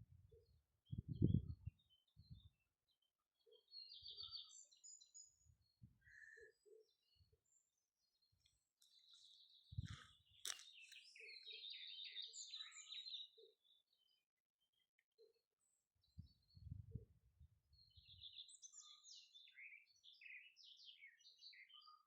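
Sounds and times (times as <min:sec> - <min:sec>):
faint birdsong chirps and trills: 0:00.0 - 0:22.0.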